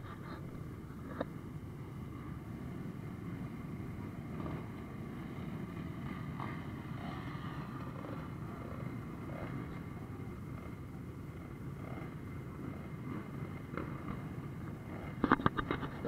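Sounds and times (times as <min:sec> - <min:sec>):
motorcycle engines idling: 0:00.0 - 0:16.0.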